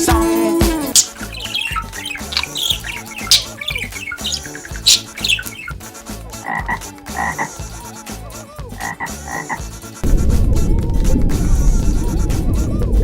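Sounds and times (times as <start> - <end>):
backing beat: 0.7 - 5.7
frog croaking: 0.7 - 5.7, 6.4 - 7.6, 8.8 - 9.6.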